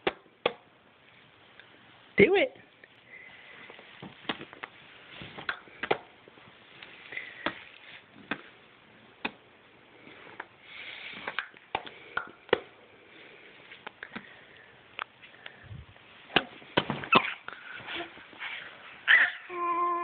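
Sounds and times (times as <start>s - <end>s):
soft breathy sounds: 3.0s - 4.0s, 6.8s - 8.2s, 9.8s - 16.2s.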